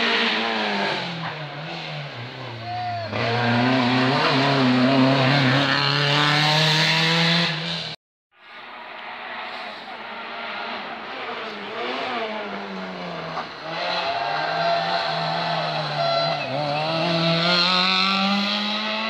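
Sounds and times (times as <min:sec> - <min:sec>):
rally car engine revving: 0:00.0 - 0:08.0, 0:09.0 - 0:19.0.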